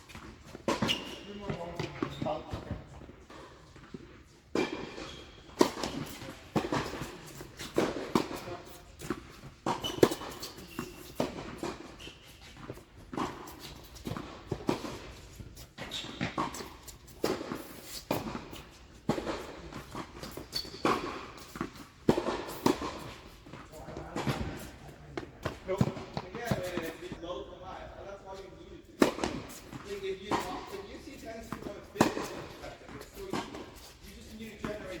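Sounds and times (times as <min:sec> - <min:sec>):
rackets hitting tennis ball: 0:00.1 - 0:27.2, 0:29.0 - 0:35.0
shoe squeaks: 0:00.7 - 0:02.7, 0:04.9 - 0:14.2, 0:15.8 - 0:21.8.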